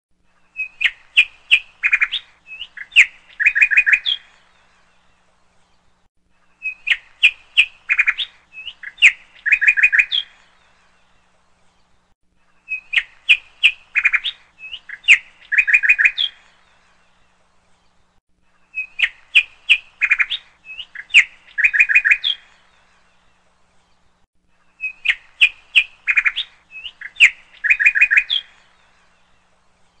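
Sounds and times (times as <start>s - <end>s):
bird chirping and chattering: 24.8s - 28.5s.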